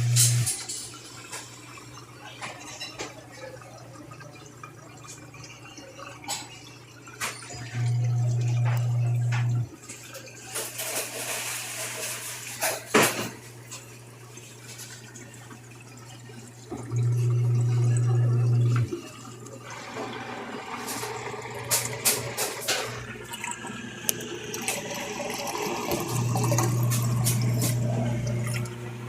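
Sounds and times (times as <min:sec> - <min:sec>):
washing machine motor hum: 0:00.0 - 0:29.0
water sloshing and splashing: 0:06.3 - 0:29.0.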